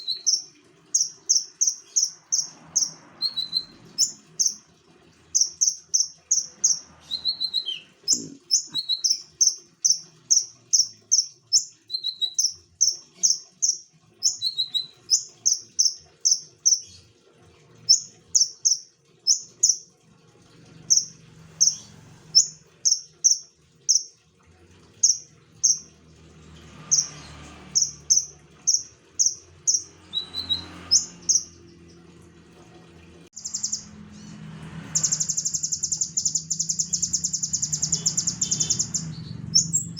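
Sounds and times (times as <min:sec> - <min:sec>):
songbird chirping: 0:00.0 - 0:04.7, 0:05.3 - 0:16.8, 0:26.9 - 0:32.0, 0:33.4 - 0:34.0, 0:34.9 - 0:39.9.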